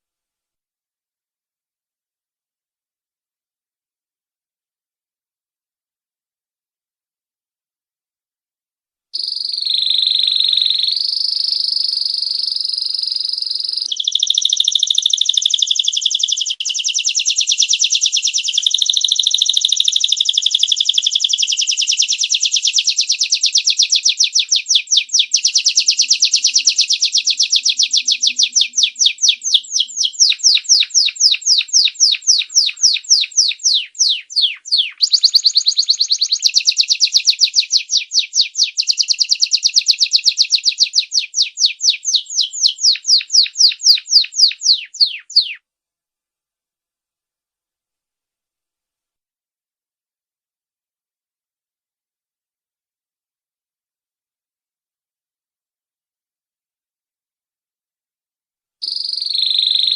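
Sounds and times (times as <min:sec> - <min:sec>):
canary singing: 0:09.2 - 0:45.6, 0:58.8 - 0:59.9.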